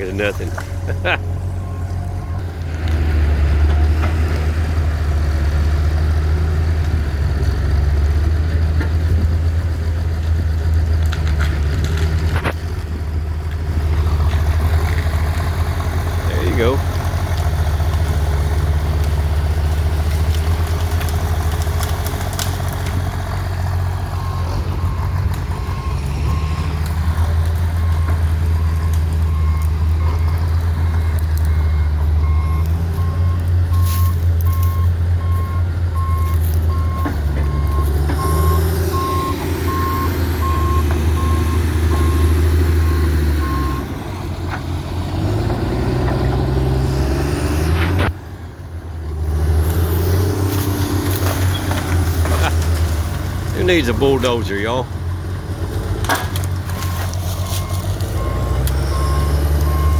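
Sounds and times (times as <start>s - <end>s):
diesel engine working under load: 0.0s - 59.9s
backup alarm beeping: 31.0s - 43.9s, 56.9s - 59.9s.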